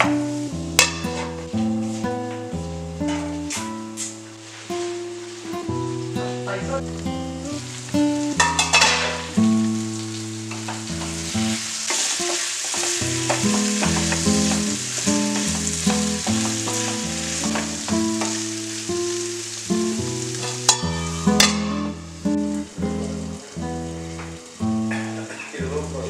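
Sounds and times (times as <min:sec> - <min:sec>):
potato masala sizzling in pan: 0:00.0 - 0:26.0
background music: 0:13.0 - 0:26.0.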